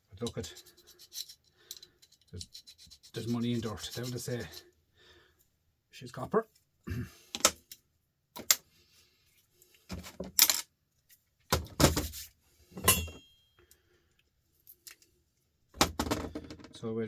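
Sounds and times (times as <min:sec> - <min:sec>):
metal parts clinking and knocking: 0:00.2 - 0:02.6, 0:10.0 - 0:10.7, 0:12.8 - 0:13.3.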